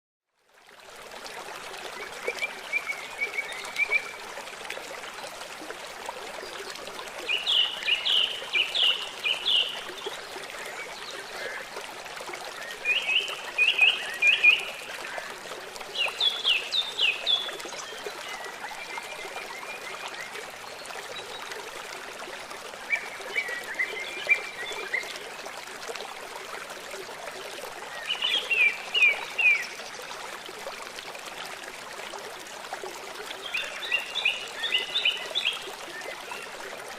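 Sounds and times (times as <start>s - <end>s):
flowing stream water: 0.3s - 36.9s
songbirds singing: 7.3s - 11.7s, 33.4s - 36.5s.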